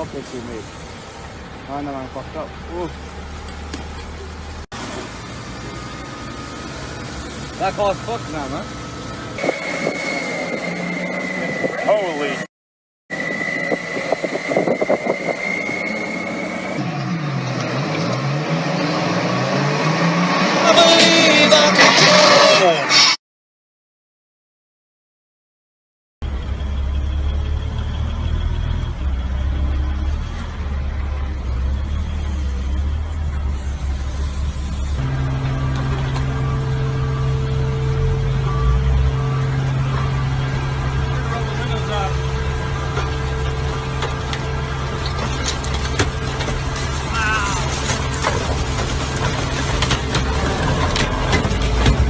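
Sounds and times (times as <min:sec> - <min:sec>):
steady high whine: 0:07.6 - 0:12.5, 0:13.1 - 0:16.8
vehicle engine revving: 0:13.1 - 0:22.8, 0:26.2 - 0:52.0.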